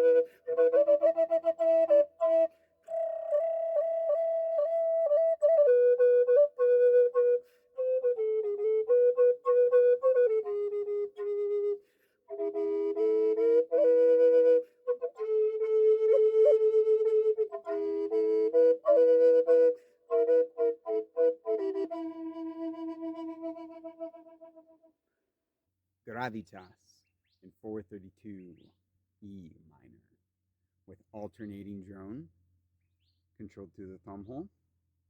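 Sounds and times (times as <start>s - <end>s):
flute playing slow melody: 0.0s - 24.8s.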